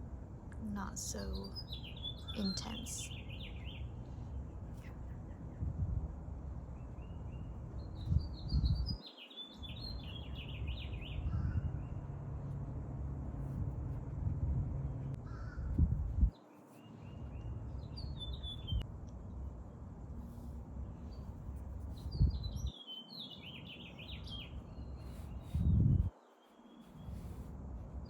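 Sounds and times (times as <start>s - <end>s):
low steady rumble: 0.0s - 9.0s, 10.2s - 16.3s, 17.0s - 22.7s, 24.5s - 26.1s, 27.0s - 28.0s
birds chirping: 0.8s - 4.0s.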